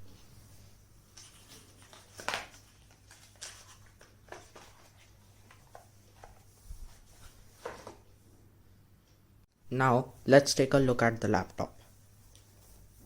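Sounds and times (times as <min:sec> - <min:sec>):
hands handling packaging: 0:01.1 - 0:08.0.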